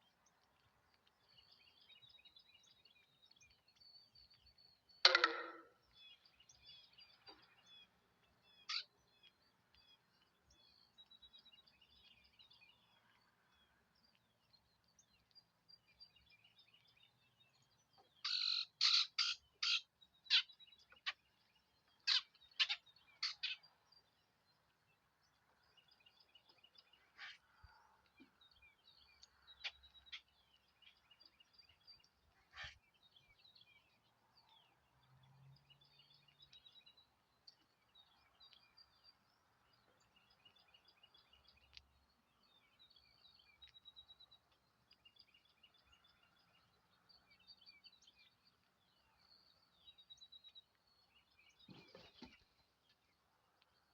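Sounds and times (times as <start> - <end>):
small birds chirping: 0.0 - 53.9
loud sharp bird chirps: 18.2 - 21.2.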